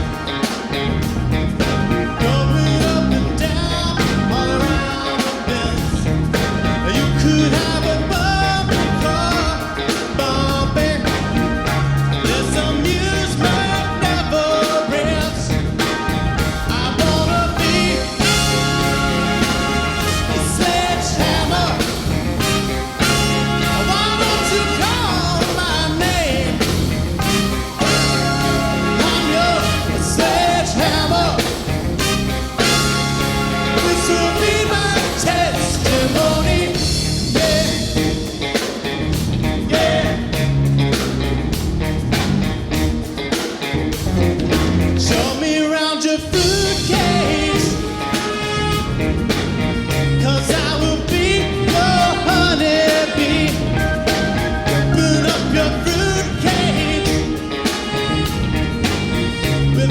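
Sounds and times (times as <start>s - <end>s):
horn section playing: 0.0s - 38.3s, 46.3s - 59.9s
bass guitar: 0.0s - 45.6s, 46.2s - 59.9s
drums: 0.0s - 59.9s
person singing: 2.1s - 16.0s, 16.6s - 32.8s, 33.6s - 38.3s, 39.6s - 40.5s, 45.1s - 48.6s, 50.2s - 58.2s.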